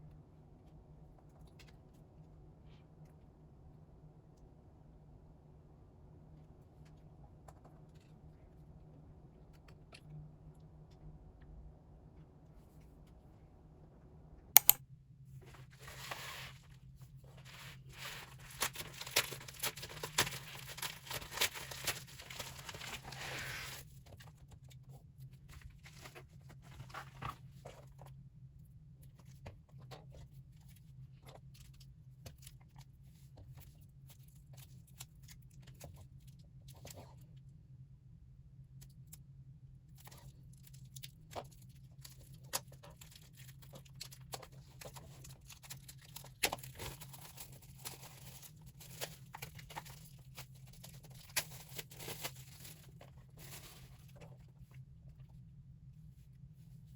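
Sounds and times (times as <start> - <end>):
low steady hum: 0.0 - 56.9
sharp click: 14.6 - 14.8
packaging tearing and crinkling: 18.4 - 23.2.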